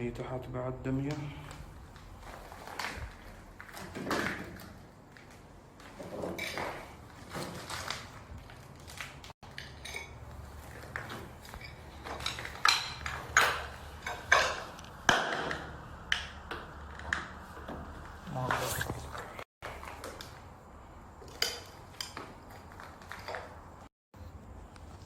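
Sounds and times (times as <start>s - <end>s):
sharp knocks and clinks: 9.5s - 10.3s
soft scraping and shuffling: 17.4s - 19.4s.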